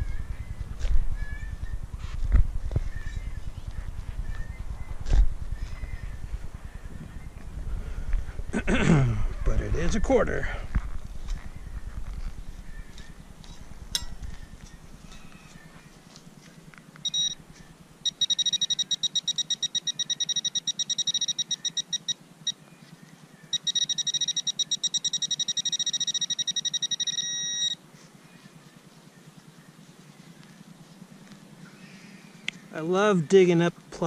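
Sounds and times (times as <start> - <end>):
rapid high-pitched beeping: 17.0 - 17.4, 18.0 - 22.6, 23.5 - 27.8.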